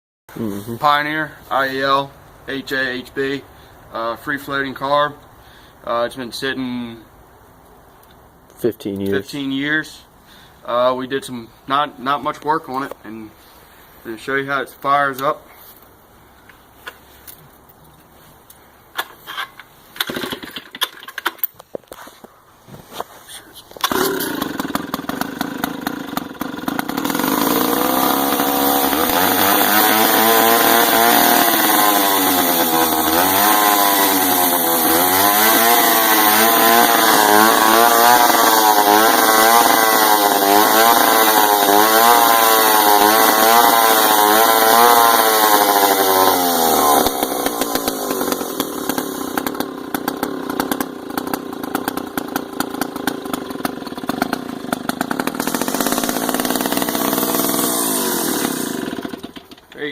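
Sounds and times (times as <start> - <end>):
chainsaw engine revving: 20.0 - 20.6, 23.8 - 59.9.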